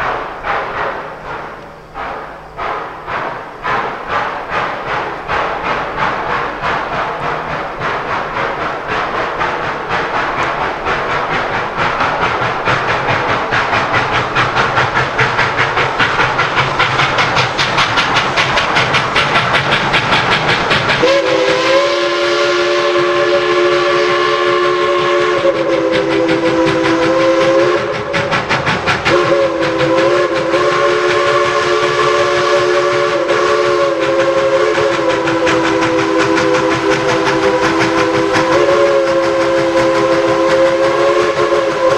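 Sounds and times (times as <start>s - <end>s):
steam locomotive chuffing: 0.0s - 41.9s
locomotive whistle chord: 21.0s - 28.0s, 29.1s - 41.9s.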